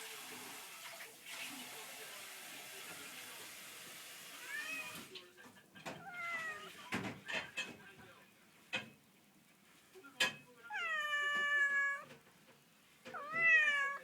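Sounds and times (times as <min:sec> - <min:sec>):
running water hissing: 0:00.0 - 0:05.1
cat meowing: 0:04.4 - 0:05.0, 0:05.9 - 0:06.9, 0:10.7 - 0:12.2, 0:13.1 - 0:14.0.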